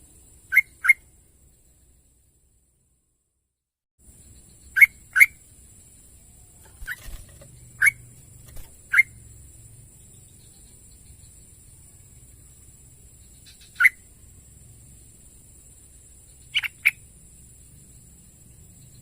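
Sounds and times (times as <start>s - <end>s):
bird chirping: 0.4s - 1.1s, 4.2s - 9.3s, 13.2s - 14.1s, 16.2s - 17.0s.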